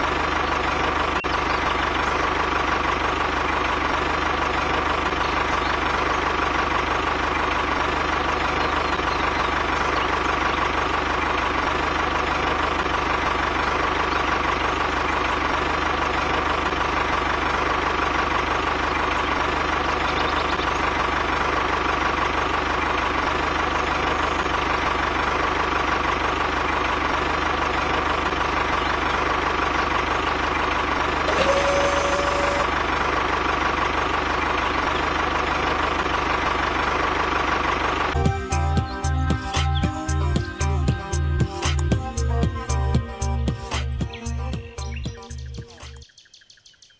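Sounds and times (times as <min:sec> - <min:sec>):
tractor engine running: 0:00.0 - 0:46.1.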